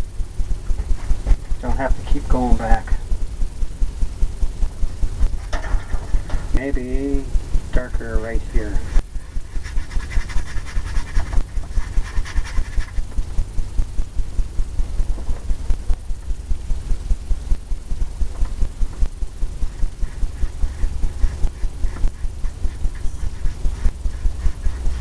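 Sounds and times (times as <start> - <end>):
paintbrush scrubbing on canvas: 8.6 - 13.2, 19.6 - 25.0.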